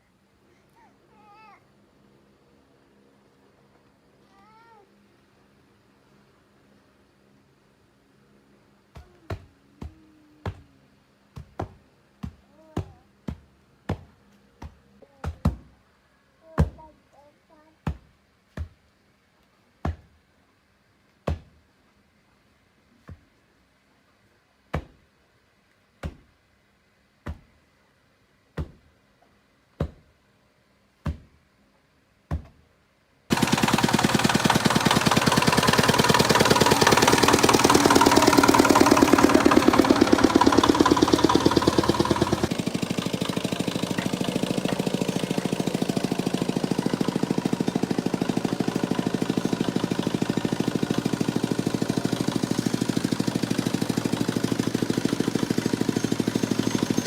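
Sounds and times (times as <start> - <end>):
small engine rattling: 33.3 - 57.0.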